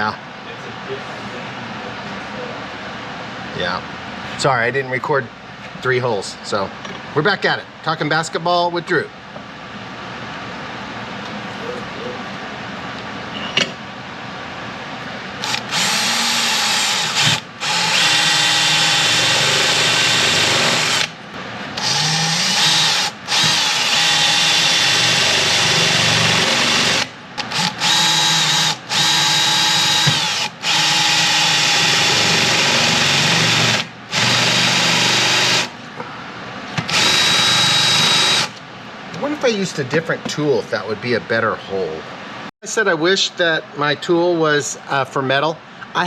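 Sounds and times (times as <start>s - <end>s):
power drill cutting metal: 15.4s - 21.2s, 21.8s - 35.7s, 36.9s - 38.6s.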